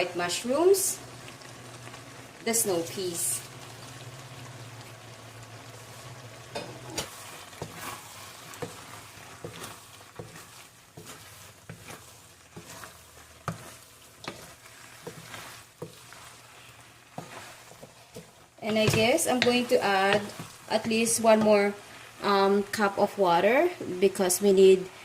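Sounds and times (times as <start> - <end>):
sauce bubbling in a pan: 0.0 - 25.0
steady sizzling hiss: 0.0 - 25.0
utensil scraping a pan: 5.8 - 21.9.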